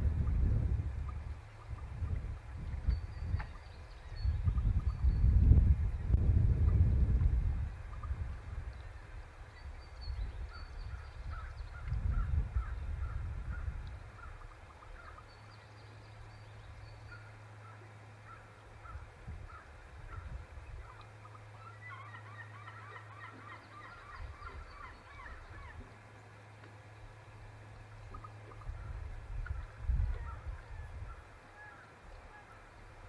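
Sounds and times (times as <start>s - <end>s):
low rumble: 0.0s - 9.0s
steady low hum: 0.0s - 33.0s
birds chattering: 14.1s - 25.8s.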